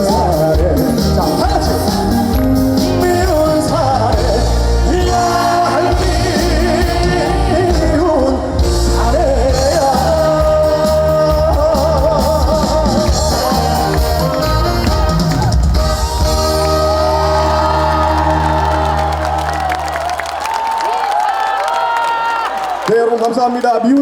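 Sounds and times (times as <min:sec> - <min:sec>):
man singing with vibrato: 0:00.0 - 0:15.2
backing band playing: 0:00.0 - 0:20.5.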